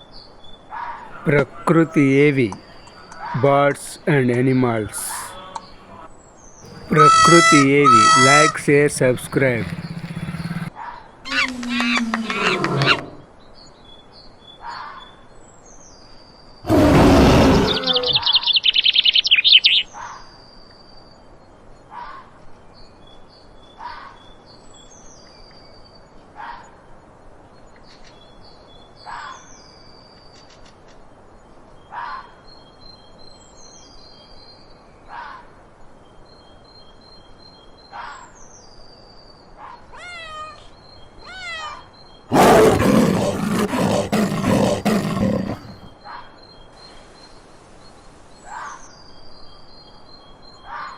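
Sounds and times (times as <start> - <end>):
bird trilling: 6.7 - 10.7
short high bird calls: 6.7 - 10.7.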